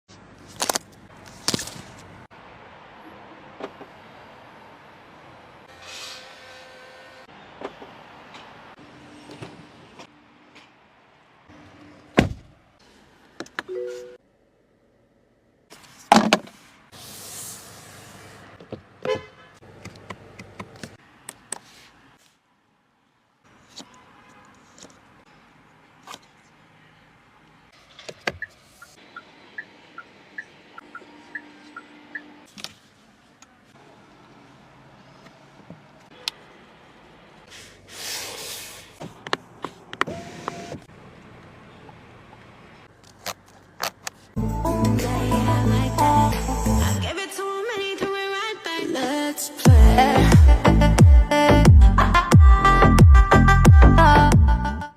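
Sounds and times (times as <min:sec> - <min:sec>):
car thump: 0:12.2 - 0:12.5
short beep: 0:13.7 - 0:14.2
car horn toot: 0:19.0 - 0:19.6
hiss: 0:37.5 - 0:39.0.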